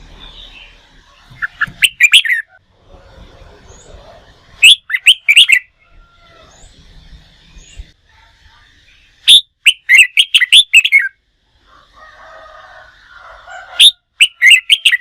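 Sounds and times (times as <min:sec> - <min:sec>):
bird chirping sweeping notes: 0:00.1 - 0:02.6.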